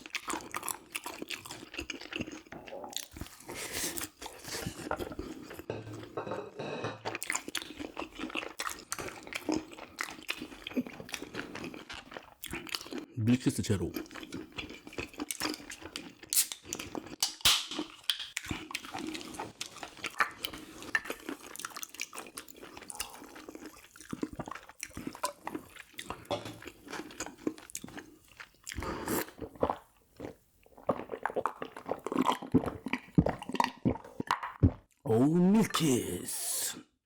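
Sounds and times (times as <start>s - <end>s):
chewing and mouth smacks: 0.0s - 6.1s, 7.0s - 13.1s, 13.9s - 35.0s.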